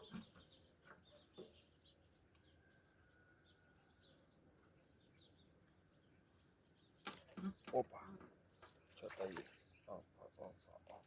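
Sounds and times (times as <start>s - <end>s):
faint birdsong chirps: 0.0s - 11.0s.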